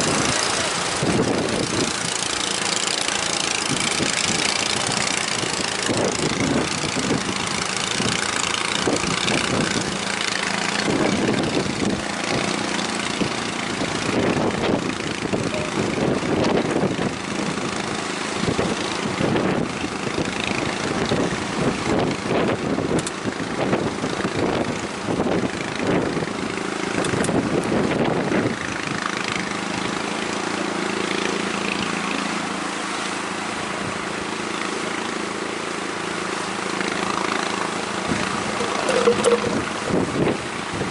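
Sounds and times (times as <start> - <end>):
wind buffeting microphone: 0.0 - 30.1, 37.1 - 40.9
boat engine running: 0.0 - 40.9
rushing water: 0.0 - 40.9.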